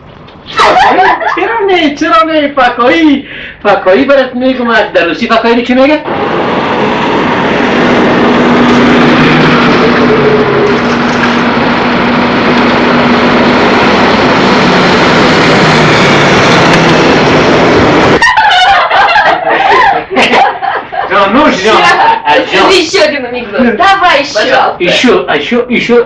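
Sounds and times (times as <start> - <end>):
car engine running: 6.1 - 18.2.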